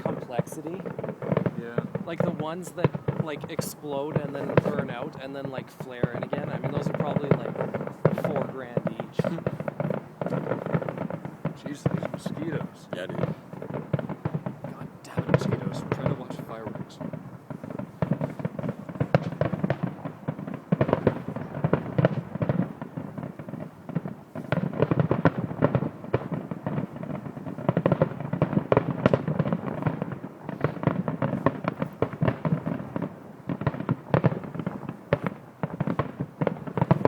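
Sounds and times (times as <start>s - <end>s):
fireworks bangs and crackles: 0.0s - 37.0s
loud firework booms: 0.0s - 37.0s.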